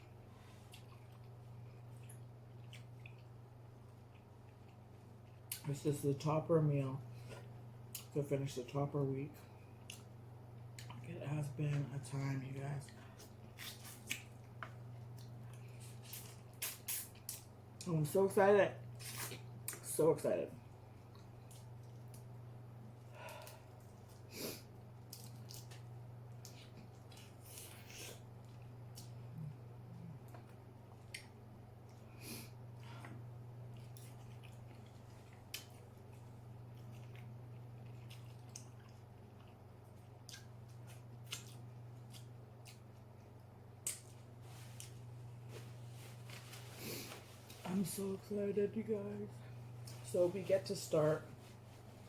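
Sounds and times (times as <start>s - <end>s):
steady low hum: 0.0s - 52.0s
person chewing wetly: 0.6s - 5.7s, 12.9s - 17.5s, 21.0s - 22.3s, 23.4s - 32.1s, 33.0s - 44.2s.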